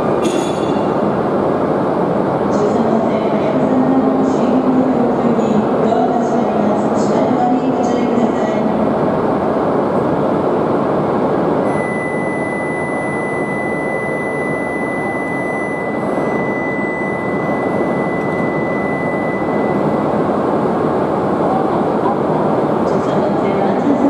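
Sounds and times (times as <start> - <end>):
train rushing noise: 0.0 - 11.8, 13.4 - 24.0
steady high-pitched tone: 11.5 - 23.1.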